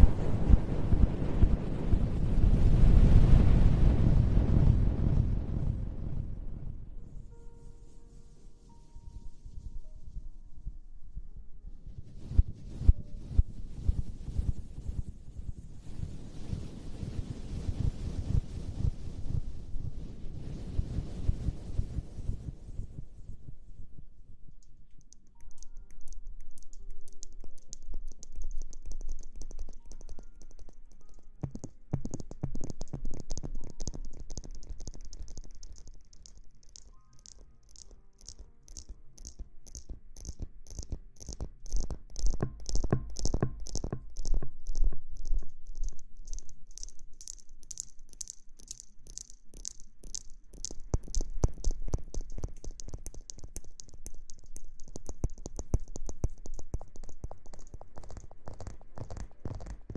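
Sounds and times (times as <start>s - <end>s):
faint music: 0.0s - 59.9s
fingers scrubbing hair: 26.6s - 59.9s.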